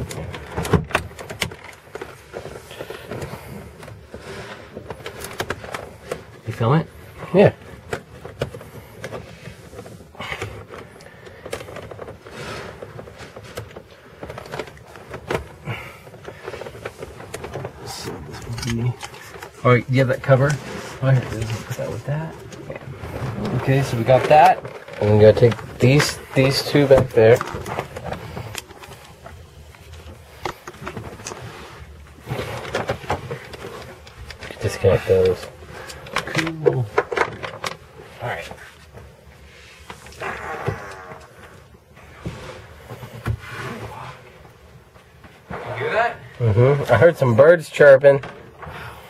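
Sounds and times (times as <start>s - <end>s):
hands handling plastic trim: 7.6s - 41.6s.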